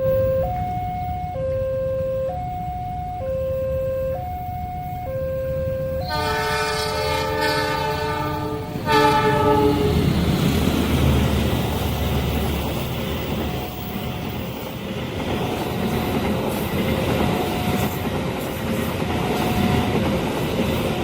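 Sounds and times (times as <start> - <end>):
two-tone crossing alarm: 0.0 - 8.2
train horn blasts: 6.0 - 10.1
train wheels rumbling and clattering: 7.0 - 21.0.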